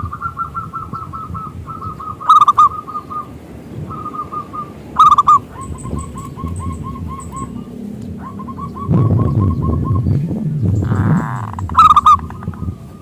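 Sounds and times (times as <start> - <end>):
dove cooing: 0.0 - 13.0
faint high bird chirps: 0.0 - 13.0.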